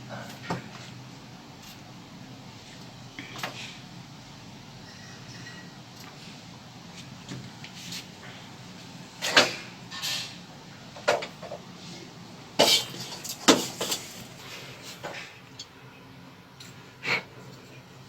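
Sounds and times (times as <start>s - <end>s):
knocks and clatters of handwork: 12.6s - 14.3s.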